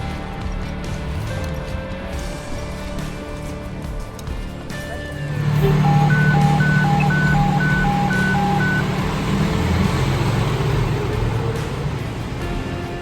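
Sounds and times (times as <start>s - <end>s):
fire engine idling hum: 5.2s - 13.0s
two-note alert tone: 5.4s - 10.5s.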